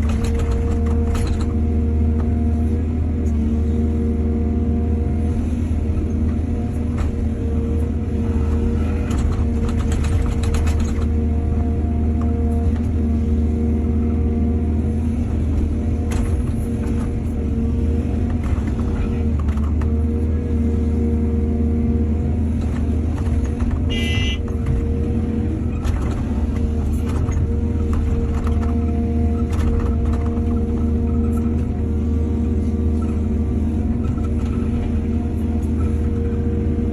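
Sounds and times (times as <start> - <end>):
excavator diesel engine running: 0.0 - 36.9
machine knocks and clanks: 9.0 - 11.2.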